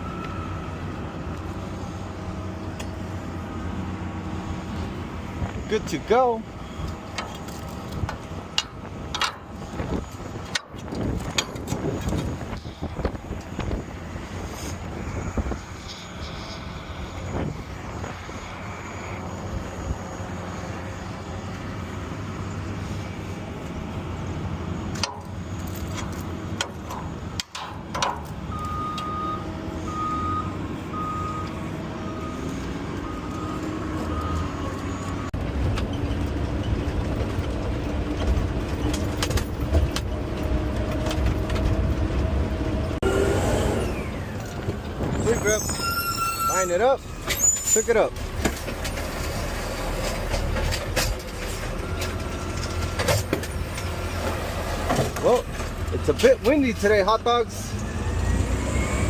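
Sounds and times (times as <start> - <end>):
backup alarm beeping: 28.5 - 35.3.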